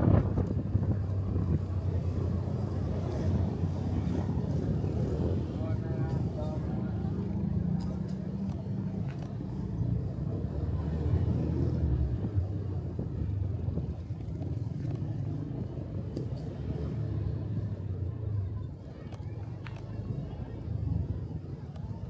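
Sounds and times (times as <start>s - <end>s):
wind and road noise: 0.0s - 22.0s.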